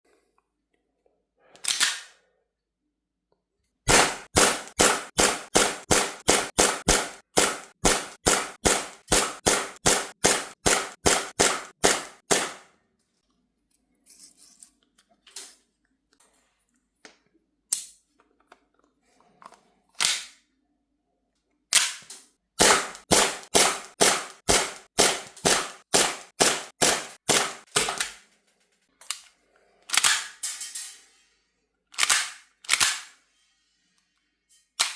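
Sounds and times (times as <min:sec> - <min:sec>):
airsoft pistol shots: 0:03.9 - 0:12.6, 0:22.6 - 0:28.1.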